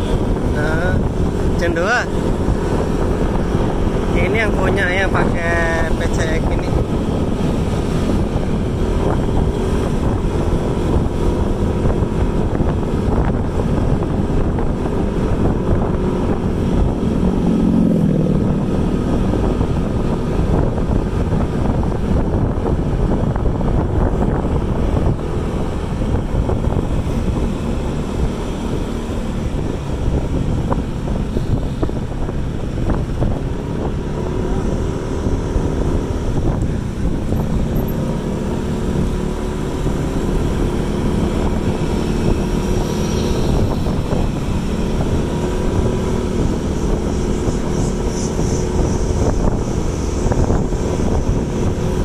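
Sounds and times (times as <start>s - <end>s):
vehicle running: 0.0s - 52.0s
wind buffeting microphone: 0.0s - 52.0s.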